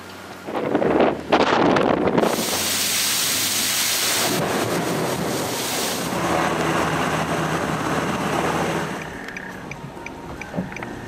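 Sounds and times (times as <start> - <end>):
wind on the microphone: 0.4 - 2.8
heavy rain hissing: 2.2 - 9.0.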